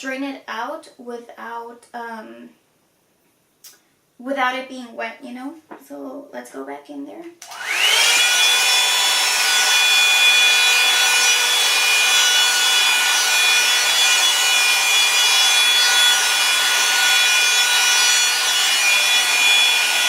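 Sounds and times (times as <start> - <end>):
hair dryer brush motor whine: 7.4 - 20.0.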